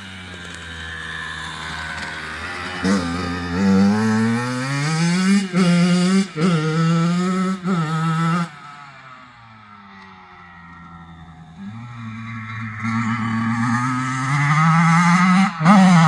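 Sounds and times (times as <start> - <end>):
motocross engine revving: 0.0 - 16.0.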